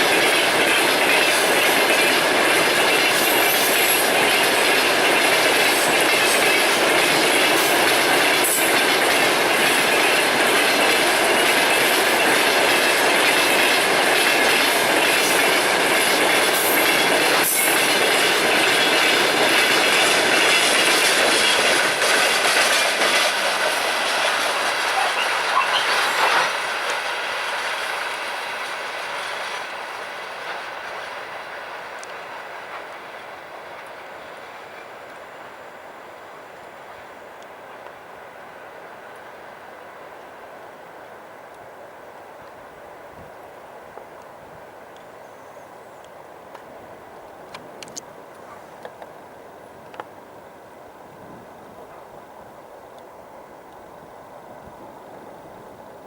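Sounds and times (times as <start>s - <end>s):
train wheels clickety-clack: 0.0s - 35.4s, 44.9s - 49.2s
freight train rumble: 0.0s - 56.0s.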